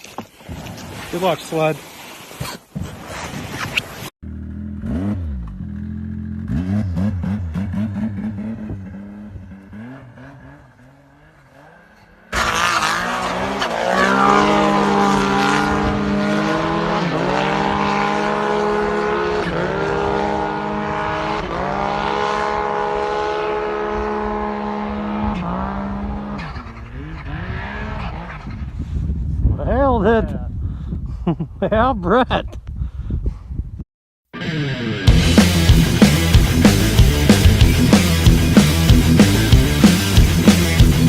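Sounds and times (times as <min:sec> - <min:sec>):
snowmobile engines revving: 0:06.6 - 0:28.5, 0:35.1 - 0:41.0.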